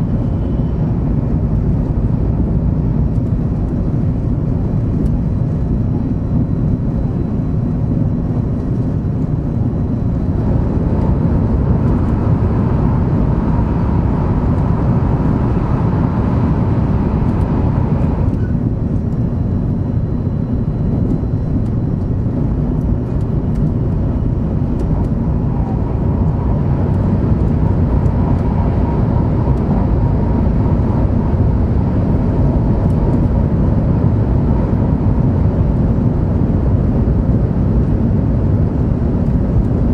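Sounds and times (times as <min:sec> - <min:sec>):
train cabin rumble: 0:00.0 - 0:35.7.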